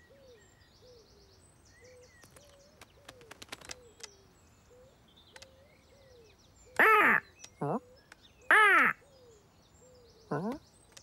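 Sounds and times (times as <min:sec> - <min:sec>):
soft ticks: 0:05.3 - 0:05.5
cartoon bird squawk: 0:06.8 - 0:07.8, 0:08.5 - 0:09.0.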